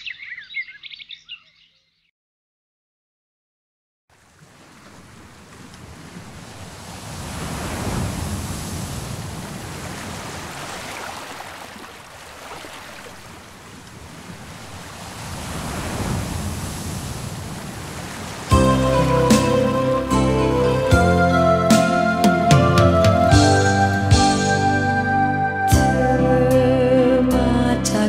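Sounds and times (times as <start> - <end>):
ocean waves washing in: 4.1 - 24.9.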